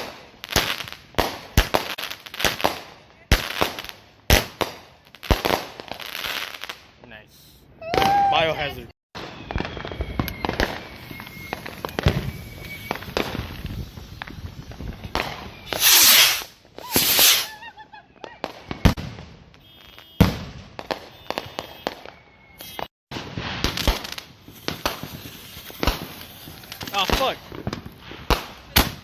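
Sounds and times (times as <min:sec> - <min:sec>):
fireworks bangs: 0:00.0 - 0:06.8, 0:07.8 - 0:29.0
fireworks popping and crackling: 0:00.0 - 0:06.9, 0:08.0 - 0:29.0
fireworks hissing bursts: 0:09.2 - 0:17.9, 0:22.5 - 0:29.0.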